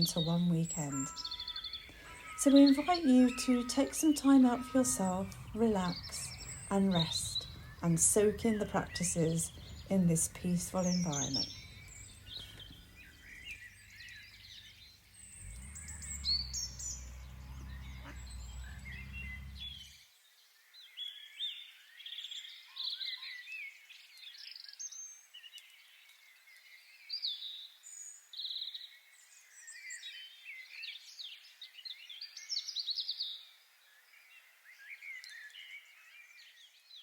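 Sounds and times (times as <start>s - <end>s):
small birds chirping: 0.0s - 37.0s
low rumble: 5.2s - 12.6s.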